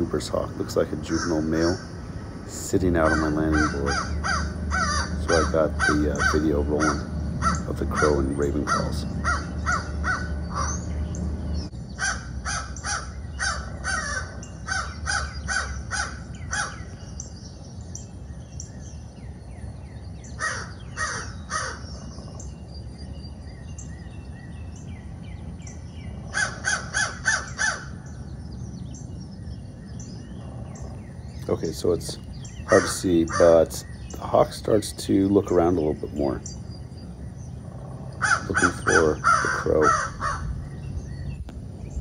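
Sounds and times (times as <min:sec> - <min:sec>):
faint high bird chirps: 0:00.0 - 0:42.0
crow caws through speaker: 0:01.1 - 0:01.8, 0:02.9 - 0:10.7, 0:12.0 - 0:16.8, 0:26.3 - 0:27.9, 0:38.2 - 0:40.5.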